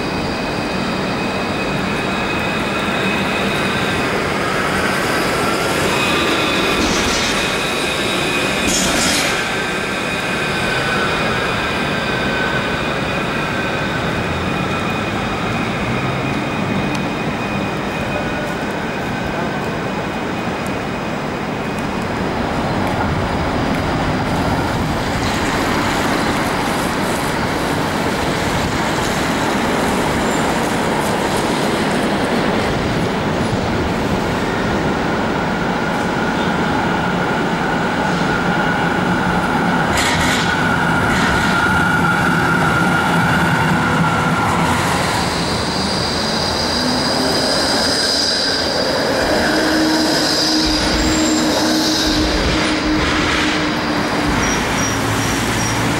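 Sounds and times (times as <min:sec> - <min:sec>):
tram wheel squeal: 0:00.0 - 0:21.8, 0:22.6 - 0:55.9
tram wheels rumbling on rail: 0:00.0 - 0:55.9.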